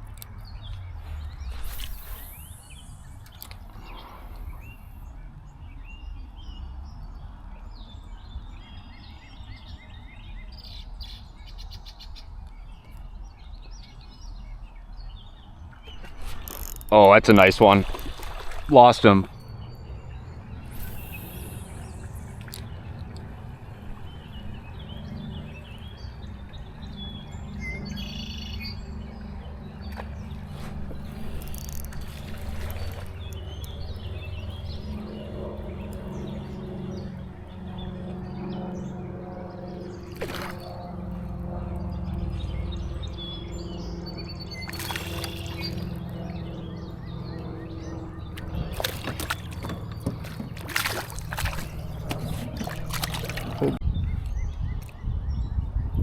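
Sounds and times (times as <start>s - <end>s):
steady low hum: 0.0s - 5.6s, 15.7s - 54.1s
steady low rumble: 0.0s - 8.4s, 15.4s - 27.9s, 28.8s - 56.0s
songbirds chirping: 0.0s - 56.0s
water sloshing around a kayak: 15.8s - 25.4s, 29.7s - 35.4s, 39.7s - 41.3s, 44.5s - 46.5s, 48.3s - 53.8s
sharp knocks and splashes: 16.0s - 19.4s, 29.9s - 33.4s, 40.1s - 40.8s, 44.6s - 46.2s, 48.4s - 53.8s.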